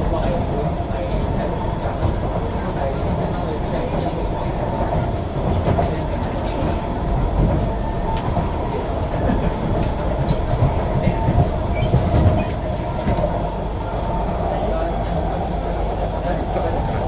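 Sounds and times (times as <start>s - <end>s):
mid-pitched train whine: 0.0s - 17.0s
wheels rumbling on track: 0.0s - 17.0s.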